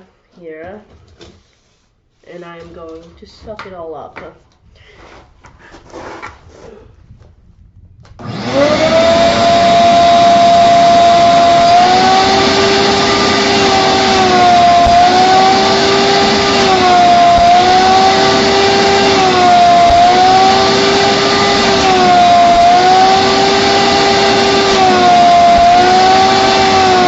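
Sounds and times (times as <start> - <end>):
shop vac motor running: 8.2 - 27.0
vacuum sucking water: 8.2 - 27.0.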